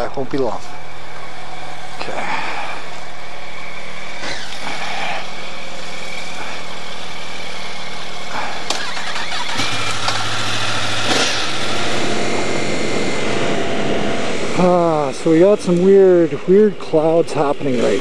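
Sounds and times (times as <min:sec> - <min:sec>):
motorcycle engine idling: 0:00.0 - 0:18.0
second engine idling: 0:00.4 - 0:18.0.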